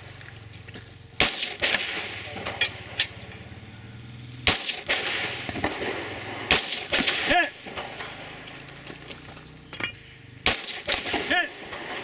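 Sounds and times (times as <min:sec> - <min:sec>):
rifle shots with echo: 0:01.2 - 0:03.3, 0:04.4 - 0:08.8, 0:10.4 - 0:12.0.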